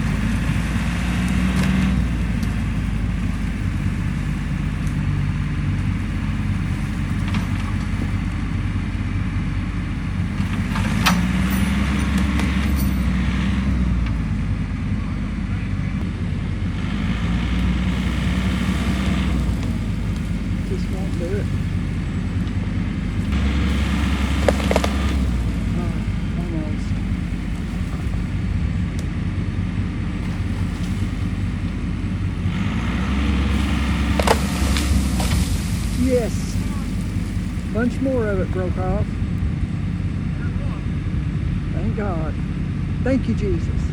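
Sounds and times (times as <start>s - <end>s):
wood cracking and snapping: 0.0s - 8.7s, 10.2s - 14.2s, 16.8s - 29.2s, 30.0s - 38.0s
tractor engine running: 0.0s - 43.9s.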